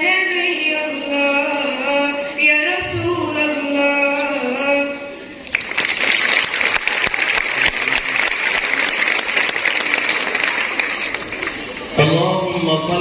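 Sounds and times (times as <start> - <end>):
girl singing: 0.0 - 5.1
audience applause: 5.5 - 12.0.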